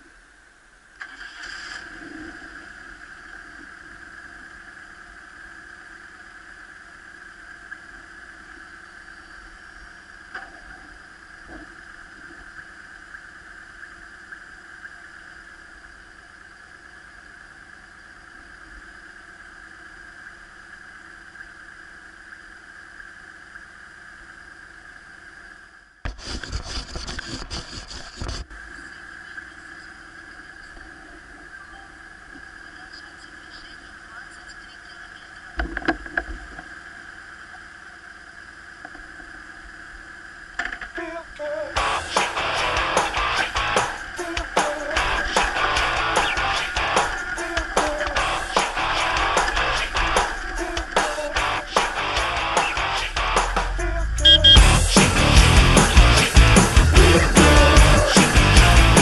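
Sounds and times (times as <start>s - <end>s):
loud rough burst of noise: 41.8s - 59.0s.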